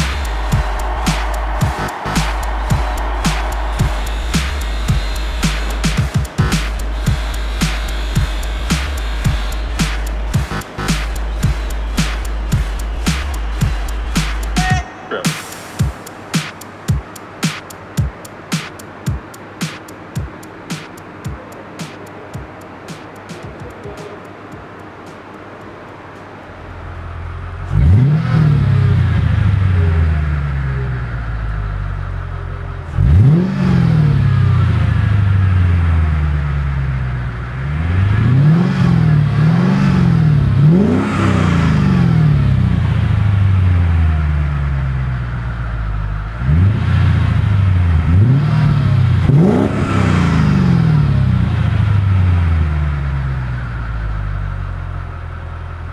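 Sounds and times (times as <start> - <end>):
car engine revving: 0.0 - 14.7, 46.4 - 52.6.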